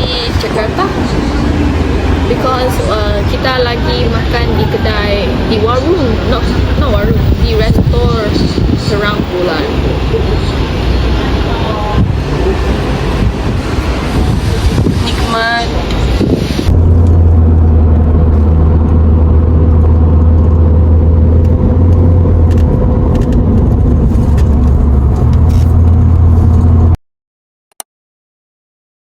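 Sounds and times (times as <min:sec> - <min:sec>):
low vehicle engine drone: 0:00.0 - 0:27.0.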